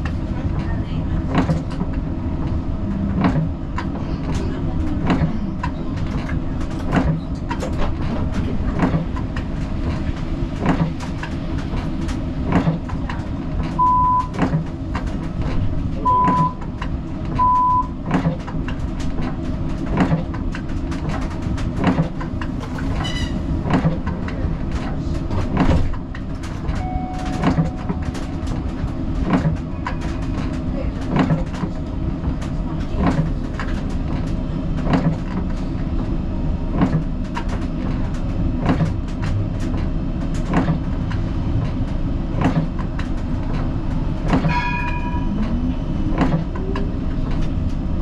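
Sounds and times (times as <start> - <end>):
tram wheels rumbling on rail: 0.0 - 48.0
short high beeps: 16.1 - 16.6, 26.8 - 28.1
ringing tone: 26.8 - 28.1, 44.5 - 45.4.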